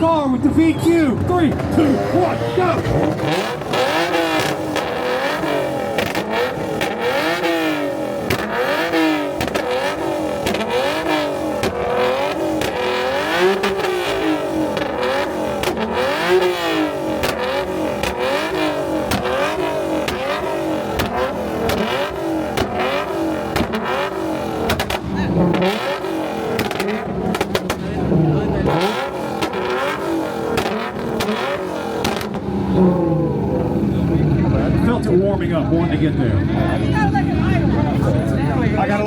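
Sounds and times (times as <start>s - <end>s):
car engine revving: 0.0s - 39.0s
exhaust cracks and pops: 8.1s - 16.0s, 16.7s - 32.5s.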